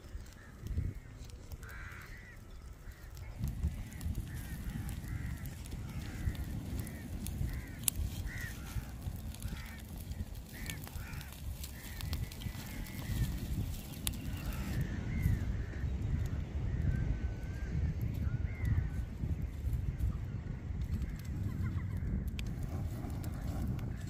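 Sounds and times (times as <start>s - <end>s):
birds calling: 0.2s - 24.0s
sharp crack: 0.3s - 14.9s.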